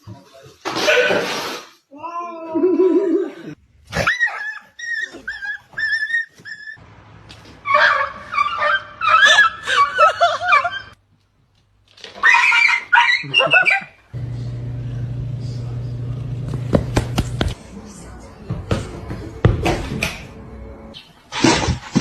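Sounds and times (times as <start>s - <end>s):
dog high-pitched calls: 7.6s - 11.0s, 12.2s - 14.0s
steady low hum: 14.2s - 17.7s.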